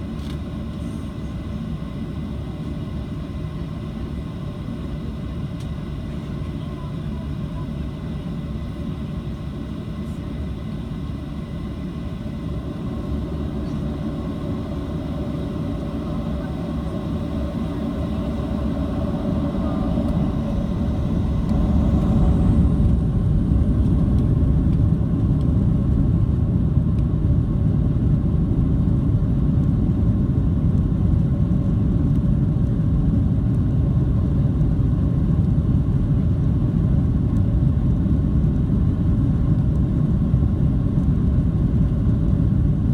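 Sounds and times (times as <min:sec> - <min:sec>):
jet engines spooling up: 0:13.2 - 0:24.9.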